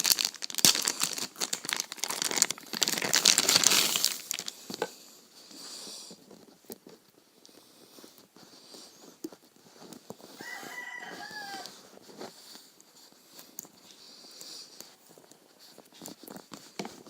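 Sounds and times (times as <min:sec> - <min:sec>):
packaging crinkling and tearing: 0:00.0 - 0:04.9, 0:09.2 - 0:13.9.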